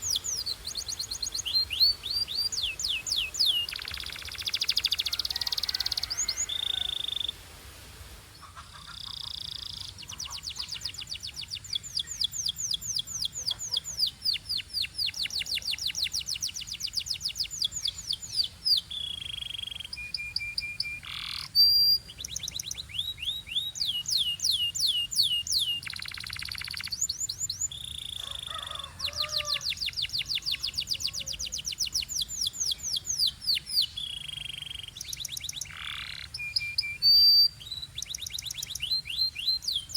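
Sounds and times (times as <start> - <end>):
canary trilling: 0.0 - 7.3, 19.2 - 27.0, 27.9 - 39.9
canary whistles: 19.9 - 22.0, 36.3 - 39.9.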